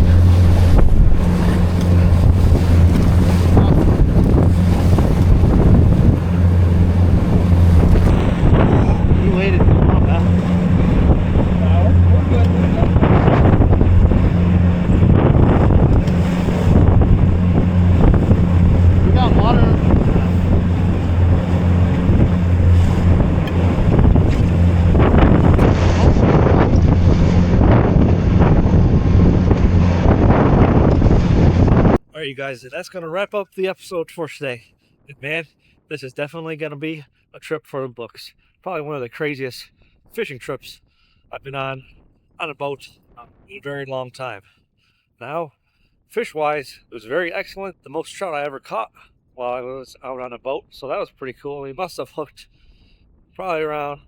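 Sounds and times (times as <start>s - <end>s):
motorboat engine droning: 0.0s - 32.0s
water rushing past: 0.0s - 32.0s
wind buffeting microphone: 0.0s - 32.0s
boat pounding through waves: 0.0s - 32.4s.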